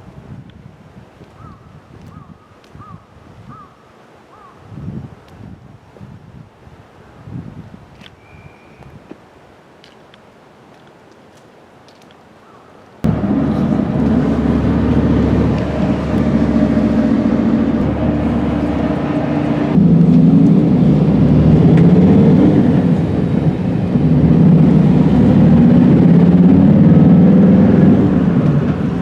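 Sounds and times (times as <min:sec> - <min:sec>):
train rumbling: 0:13.0 - 0:29.0
motor hum: 0:13.1 - 0:26.6.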